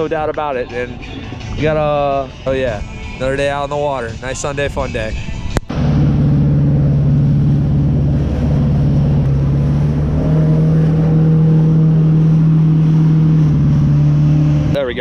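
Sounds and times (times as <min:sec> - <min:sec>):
jet ski engine revving: 0:05.7 - 0:15.0.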